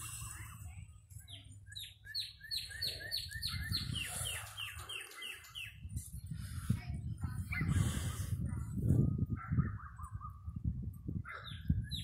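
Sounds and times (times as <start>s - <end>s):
songbird whistling: 1.7s - 5.8s.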